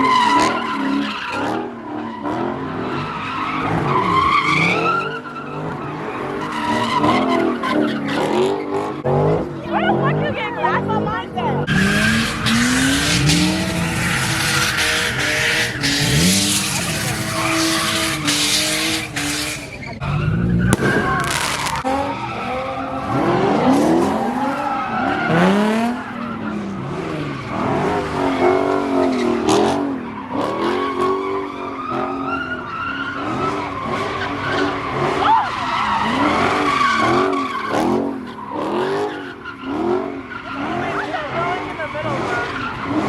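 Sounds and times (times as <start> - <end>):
car tyres screeching: 0.0 - 43.0
car engine revving hard: 5.6 - 19.8, 20.7 - 43.0.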